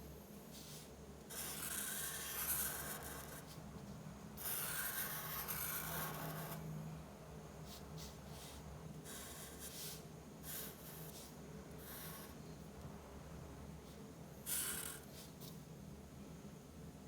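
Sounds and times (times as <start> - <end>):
drawing tool scratching paper: 0.6 - 3.6, 4.4 - 6.6, 7.7 - 12.4, 13.9 - 15.4.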